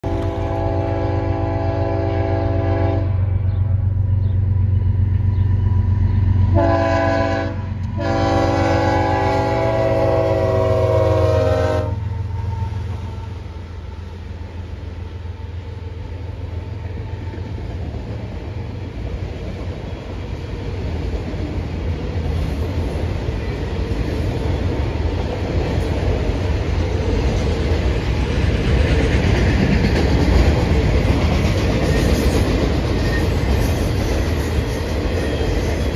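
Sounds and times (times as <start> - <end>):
train air horn: 0.0 - 3.4, 6.5 - 13.5
locomotive engines droning: 0.0 - 35.9
rail cars rumbling and clattering: 0.0 - 35.9.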